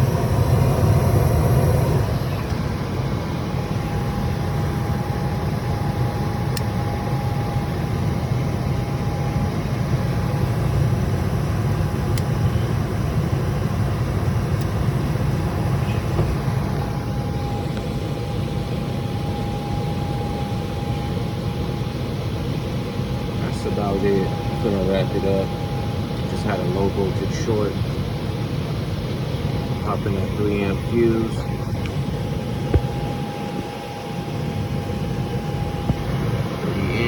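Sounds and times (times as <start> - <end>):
hvac motor and airflow hum: 0.0 - 37.0
thin steady whine: 0.0 - 37.0.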